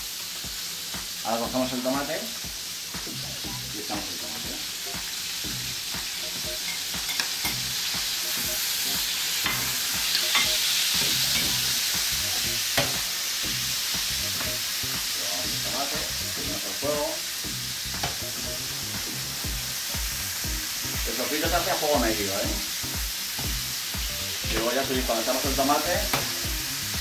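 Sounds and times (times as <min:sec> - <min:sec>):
food sizzling in a pan: 0:00.0 - 0:27.0.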